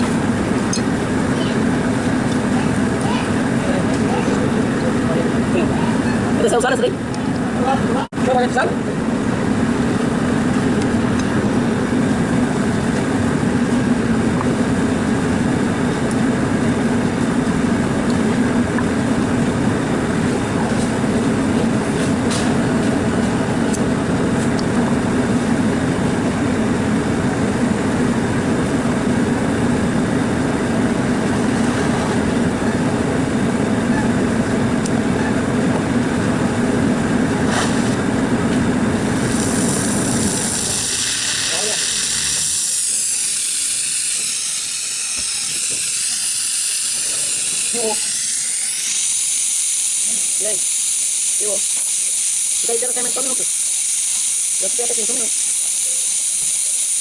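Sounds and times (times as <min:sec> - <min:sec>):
air cooler fan whooshing: 0:00.0 - 0:57.0.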